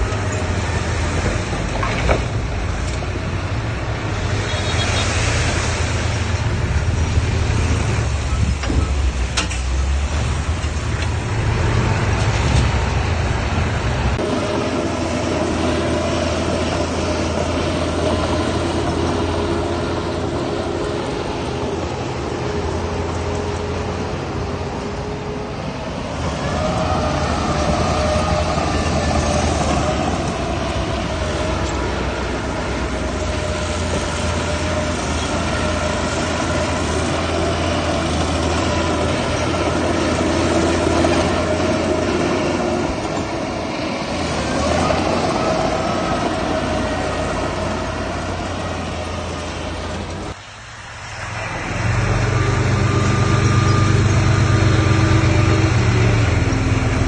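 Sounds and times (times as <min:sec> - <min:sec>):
diesel engine drone: 0:00.0 - 0:57.0
metallic squealing: 0:51.2 - 0:57.0.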